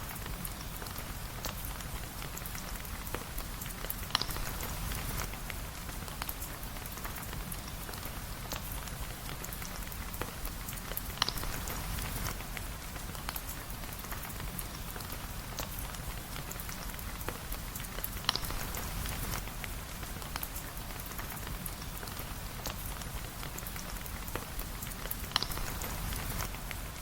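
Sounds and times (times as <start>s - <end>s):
fireplace crackling and popping: 0.0s - 27.0s
rain falling: 0.0s - 27.0s.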